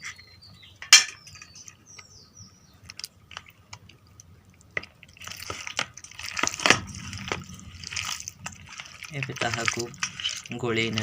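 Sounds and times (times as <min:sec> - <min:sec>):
wet squelching of batter: 0:02.8 - 0:11.0.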